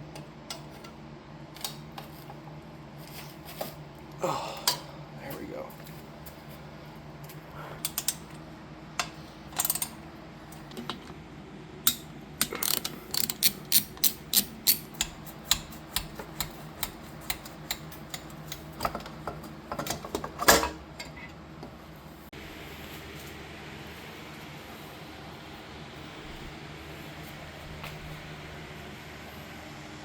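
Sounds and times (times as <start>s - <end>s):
socket ratchet clicking: 11.9s - 18.6s.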